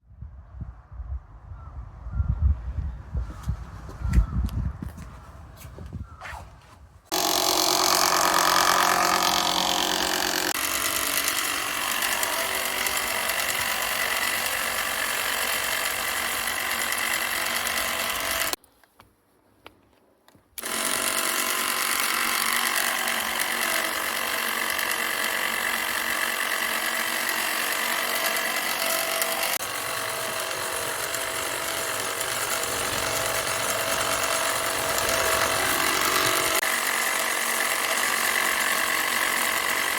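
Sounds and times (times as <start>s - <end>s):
lawn mower blades rattling: 7.1s - 18.6s, 20.6s - 39.9s.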